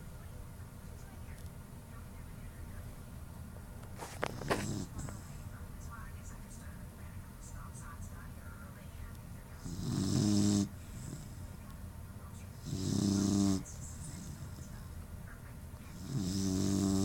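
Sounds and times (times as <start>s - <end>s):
puppy snoring: 4.0s - 5.4s, 9.6s - 11.6s, 12.5s - 14.9s, 15.9s - 17.0s.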